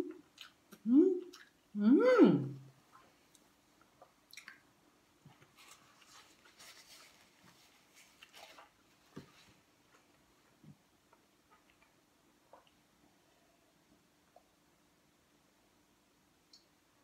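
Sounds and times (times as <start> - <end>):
faint chewing of food: 0.0 - 1.7, 2.8 - 14.6
paper napkin rustling: 5.5 - 9.7.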